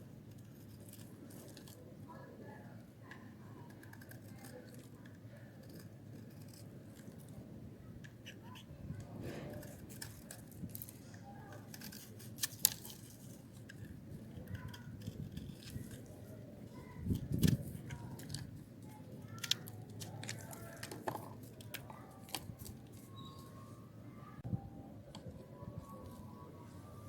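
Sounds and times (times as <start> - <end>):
knife scraping dry soap: 3.7 - 7.3, 8.2 - 23.4.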